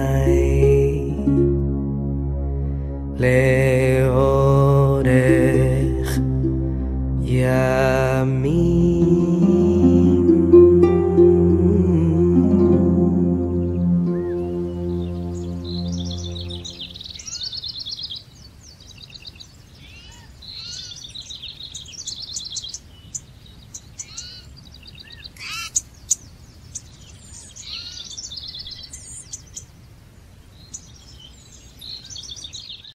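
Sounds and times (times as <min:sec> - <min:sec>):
small birds singing and chirping: 0:00.0 - 0:00.9, 0:13.4 - 0:33.0
low musical drone: 0:00.0 - 0:17.2
faint background hiss: 0:00.0 - 0:32.9.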